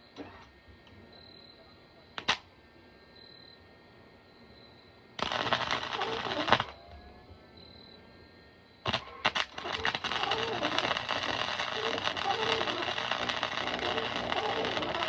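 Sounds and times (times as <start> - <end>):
welding arc crackling: 5.2 - 6.8, 8.9 - 15.0.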